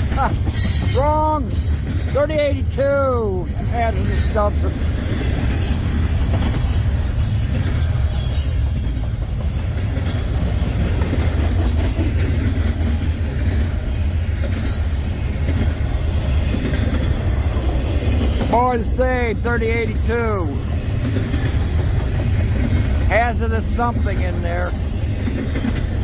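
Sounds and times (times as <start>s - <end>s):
train clacks: 0.0s - 26.0s
train wheels rumbling on rail: 0.0s - 26.0s
high wheel squeal: 5.6s - 9.4s.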